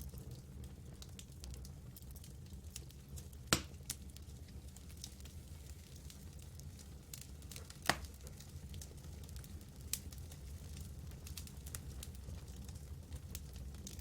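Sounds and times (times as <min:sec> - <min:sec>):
campfire crackling: 0:00.0 - 0:14.0
sharp fire pops: 0:03.5 - 0:04.0, 0:07.6 - 0:08.2.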